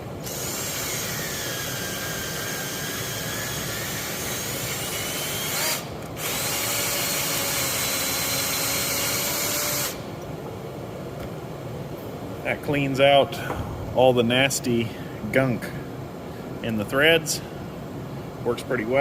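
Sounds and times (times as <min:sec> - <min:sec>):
power drill whining: 0:00.2 - 0:10.0.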